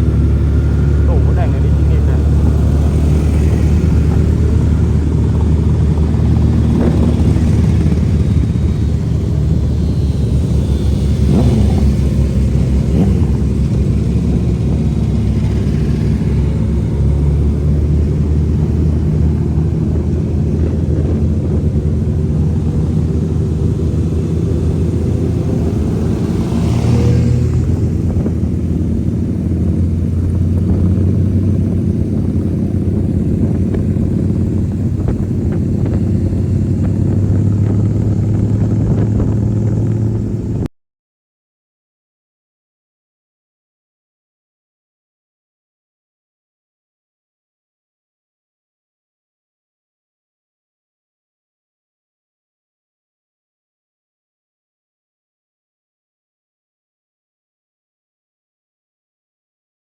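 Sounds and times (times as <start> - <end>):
motorcycle engine drone: 0.0 - 40.7
vehicles passing: 0.0 - 40.7.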